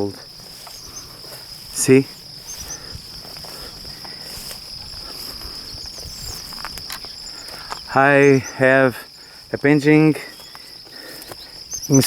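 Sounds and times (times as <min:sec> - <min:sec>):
faint rustling: 0:00.0 - 0:08.3
crickets trilling: 0:00.0 - 0:12.0.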